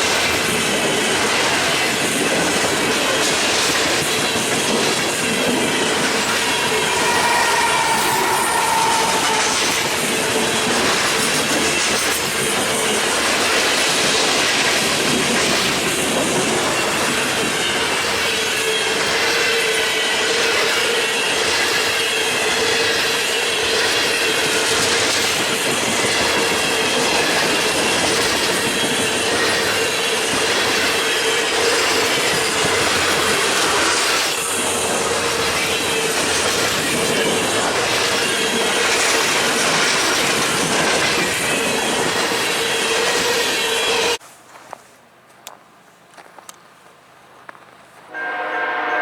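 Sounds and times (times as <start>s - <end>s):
train wheels clattering over rails: 0.0s - 44.2s
train wheels squealing: 3.4s - 13.6s, 15.5s - 44.2s.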